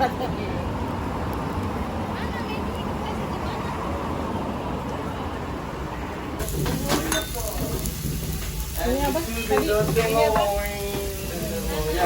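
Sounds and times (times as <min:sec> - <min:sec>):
people's voices: 0:00.0 - 0:12.0
traffic hum: 0:00.0 - 0:12.0.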